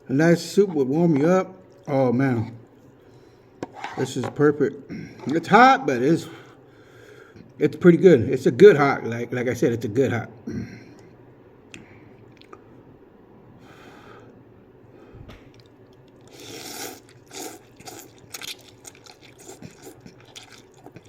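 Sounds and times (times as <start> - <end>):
person chewing noodles: 15.5 - 21.0.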